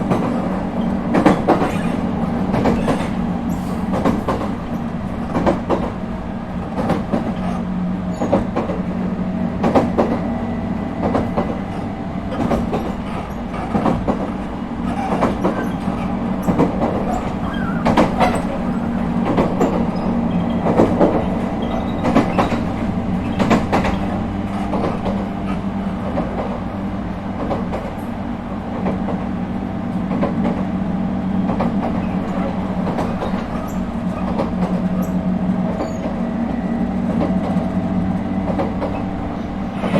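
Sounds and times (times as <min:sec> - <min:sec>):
train running rumble: 0:00.0 - 0:39.9
wheel clicks over rail: 0:11.0 - 0:26.7.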